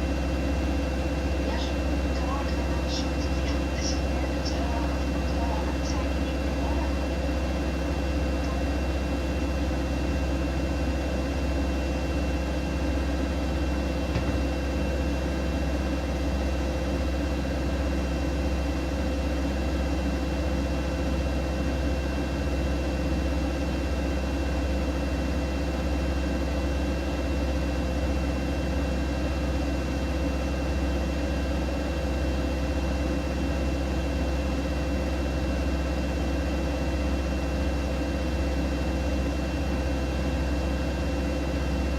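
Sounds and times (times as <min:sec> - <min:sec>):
washing machine humming: 0:00.0 - 0:41.9.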